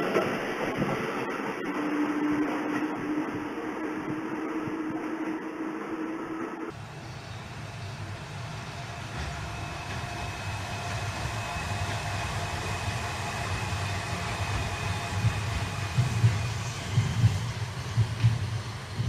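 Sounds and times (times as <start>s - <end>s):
electric train rumbling: 0.0s - 19.0s.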